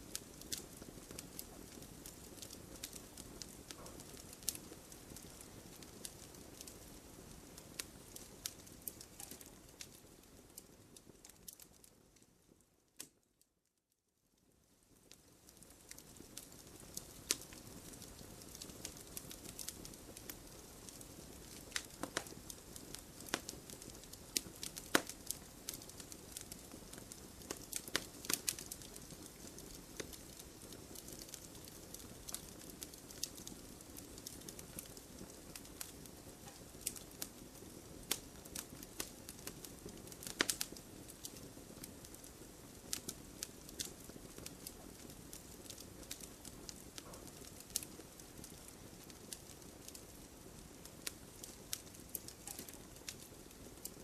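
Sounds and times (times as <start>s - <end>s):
burning wood crackling and popping: 0.0s - 13.2s, 14.4s - 54.0s
fire hissing: 15.6s - 54.0s.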